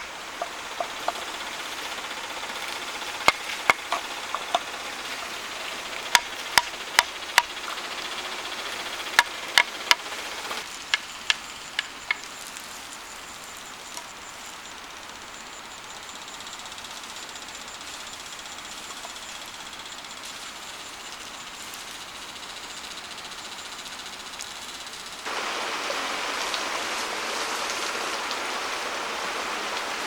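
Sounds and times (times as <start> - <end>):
tool knocking on wood: 0.3 - 7.8.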